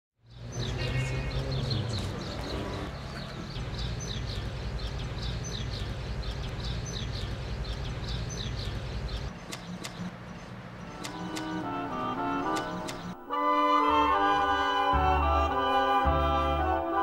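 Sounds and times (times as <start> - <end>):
small bird chirping: 0.2 - 11.6
sharp clicks: 9.2 - 11.6, 12.5 - 13.2.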